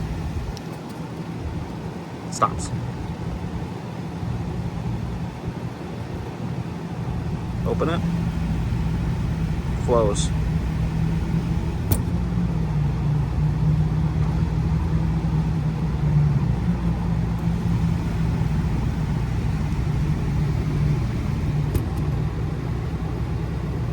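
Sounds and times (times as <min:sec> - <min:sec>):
gas furnace humming: 0:00.0 - 0:00.7, 0:06.8 - 0:23.9
sharp clicks: 0:07.5 - 0:12.1, 0:17.4 - 0:22.2.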